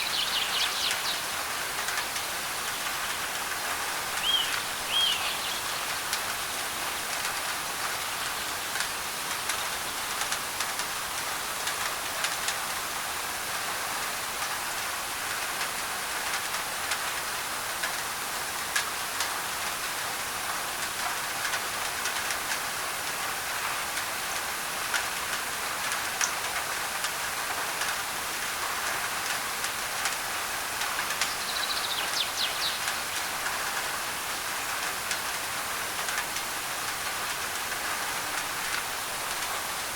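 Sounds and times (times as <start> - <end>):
bird chirping: 0.0 - 1.3, 4.2 - 5.9, 31.3 - 33.1
rain on a tin roof: 0.0 - 39.9.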